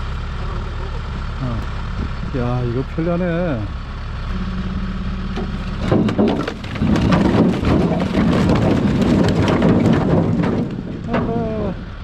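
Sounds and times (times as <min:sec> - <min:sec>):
truck engine idling: 0:00.0 - 0:12.0
logs tumbling and clattering: 0:05.4 - 0:11.8.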